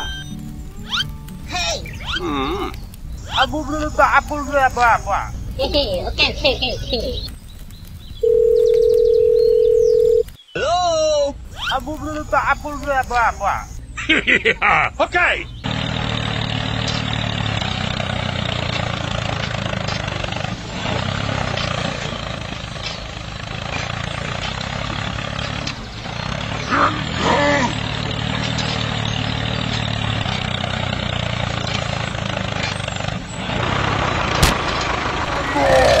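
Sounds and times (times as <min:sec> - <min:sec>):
small tractor engine running: 0:00.0 - 0:10.3, 0:11.3 - 0:14.2, 0:15.0 - 0:36.0.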